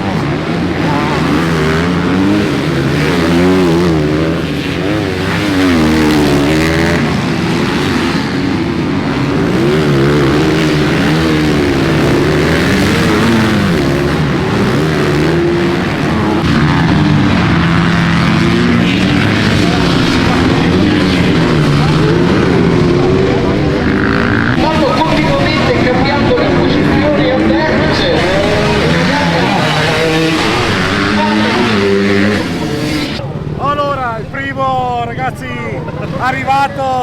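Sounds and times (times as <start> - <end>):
motocross bike engines revving: 0.0 - 37.0.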